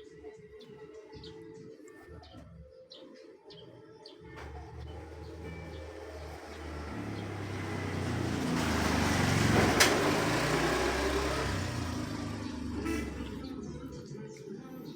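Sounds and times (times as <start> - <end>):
vehicle engine passing by: 4.4 - 14.0.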